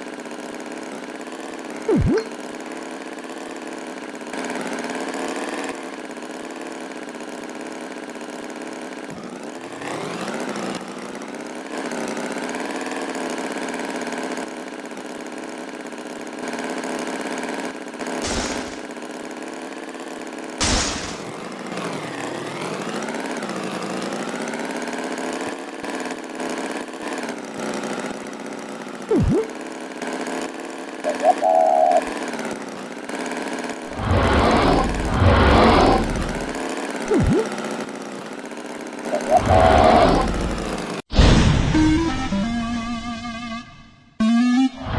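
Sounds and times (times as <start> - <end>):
engine-like drone sliding in pitch: 31.1 - 32.1, 33.9 - 37.6, 39.2 - 41.0.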